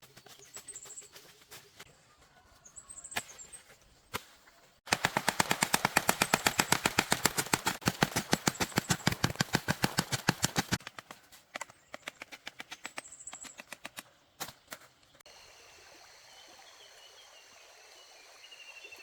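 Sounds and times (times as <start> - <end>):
fast sharp clacks: 4.9 - 14.0
small birds chirping: 8.2 - 15.3.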